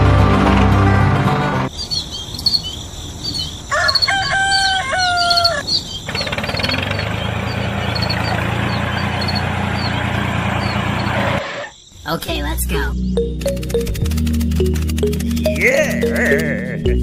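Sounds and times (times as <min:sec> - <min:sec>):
small birds chirping: 0:01.7 - 0:17.0
rooster crowing: 0:03.7 - 0:05.7.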